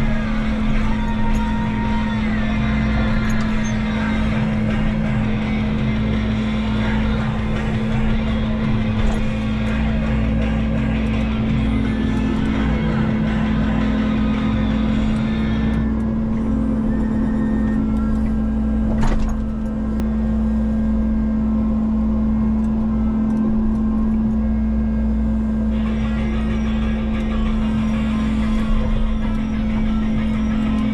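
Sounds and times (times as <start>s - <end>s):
diesel engine running: 0.0s - 30.9s
harsh machine noise: 0.0s - 30.9s.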